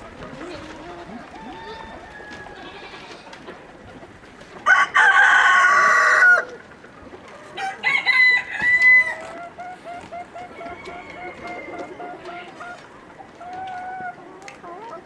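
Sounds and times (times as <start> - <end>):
chickens clucking: 0.0 - 15.0
rooster crowing: 1.4 - 3.0, 4.6 - 6.5, 7.6 - 9.3, 10.6 - 12.0.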